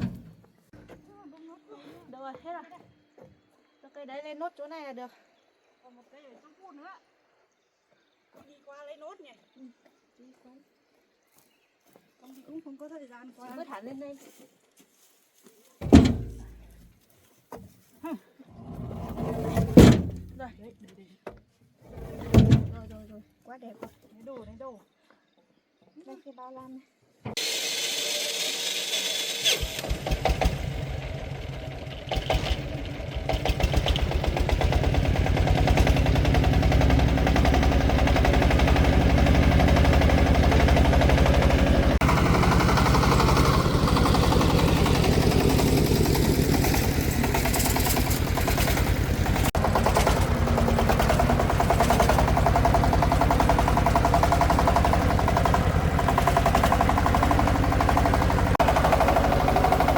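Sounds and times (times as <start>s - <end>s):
diesel engine chugging: 0.0s - 0.4s, 29.8s - 59.9s.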